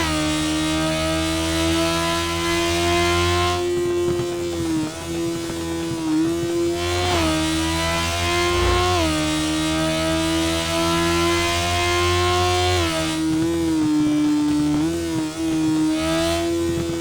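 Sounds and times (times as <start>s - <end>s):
motorcycle engine accelerating: 6.1s - 14.9s.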